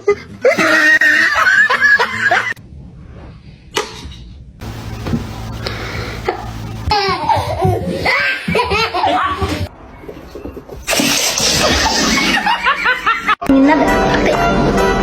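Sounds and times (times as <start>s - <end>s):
person laughing heartily: 0.4s - 2.6s.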